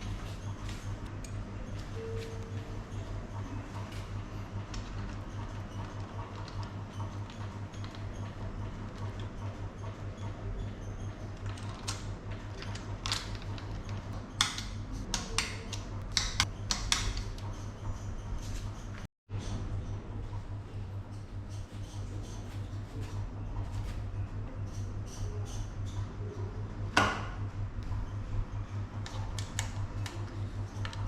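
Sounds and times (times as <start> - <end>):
steady low hum: 0.0 - 31.0
tools clicking and tapping: 12.6 - 18.1.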